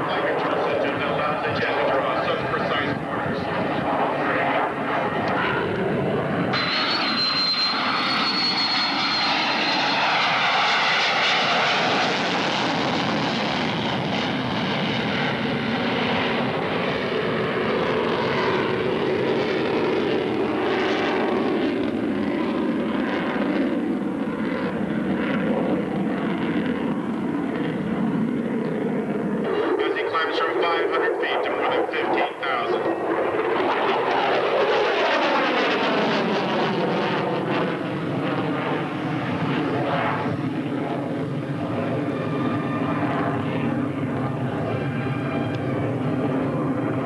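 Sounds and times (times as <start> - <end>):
jet engine rushing: 0.0 - 47.0
thin high whine: 6.6 - 9.6.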